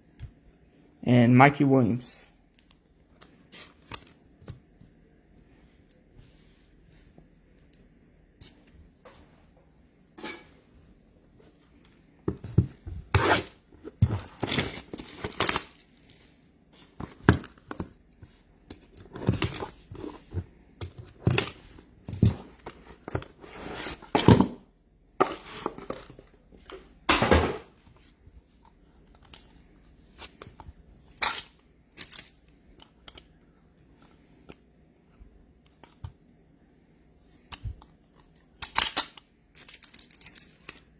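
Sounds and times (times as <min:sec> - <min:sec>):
card packs being torn open: 0:14.1 - 0:16.3, 0:31.1 - 0:32.4, 0:38.6 - 0:40.9
foil wrappers crinkling: 0:14.3 - 0:16.4, 0:38.7 - 0:40.9.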